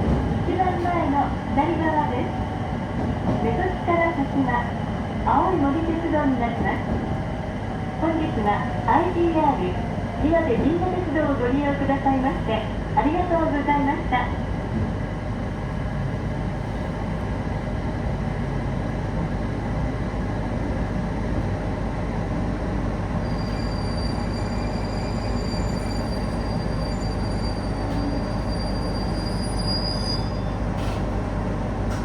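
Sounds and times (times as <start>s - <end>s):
train wheels rumbling on rail: 0.0s - 32.0s
faint high squeal: 23.2s - 30.6s.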